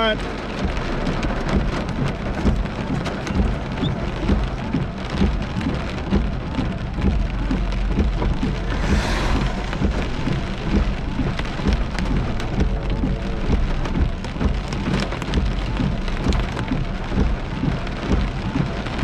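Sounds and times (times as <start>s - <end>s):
heavy rain on car windshield: 0.0s - 19.0s
low rumble of car: 0.0s - 19.0s
windshield wipers sweeping: 0.0s - 19.0s.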